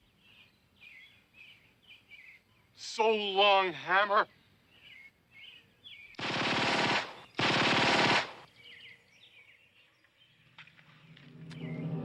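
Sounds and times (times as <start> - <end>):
automatic gunfire bursts: 6.2 - 8.5.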